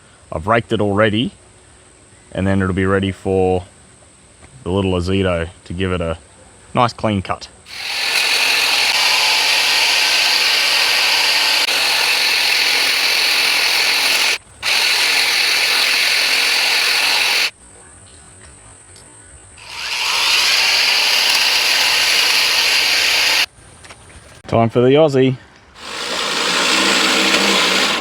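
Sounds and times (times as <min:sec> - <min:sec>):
cordless grass shears whirring: 0:07.7 - 0:17.5, 0:19.6 - 0:23.5, 0:25.8 - 0:28.0.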